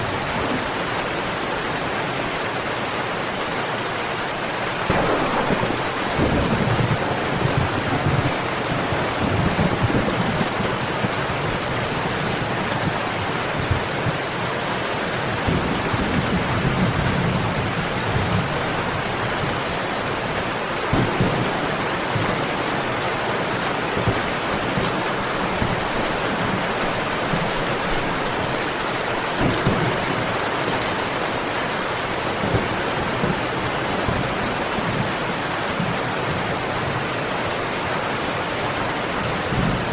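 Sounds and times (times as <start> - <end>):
heavy rain: 0.0 - 39.9
thunder rolling: 4.9 - 14.2, 20.9 - 34.3.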